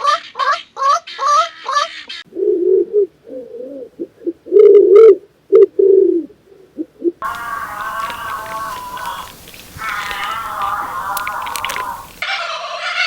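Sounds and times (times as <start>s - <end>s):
bird cooing: 2.3s - 12.2s
high-pitched animal sound: 7.2s - 13.0s.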